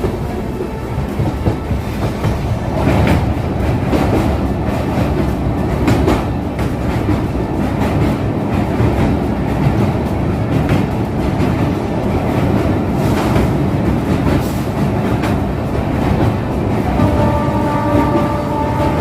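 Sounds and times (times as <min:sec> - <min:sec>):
sharp rail clacks: 0:00.0 - 0:19.0
train wheels rumbling on rails: 0:00.0 - 0:19.0.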